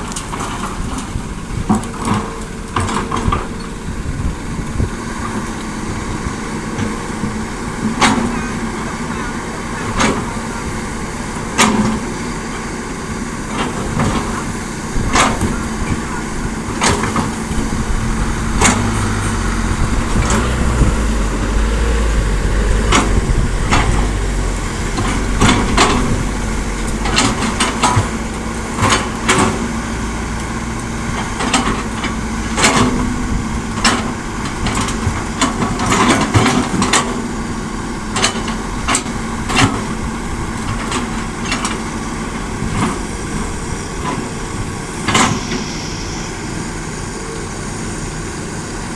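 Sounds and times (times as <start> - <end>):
deep engine rumble: 0.0 - 48.9
diesel engines running: 0.0 - 48.9
sharp clanks and knocks: 16.7 - 21.1.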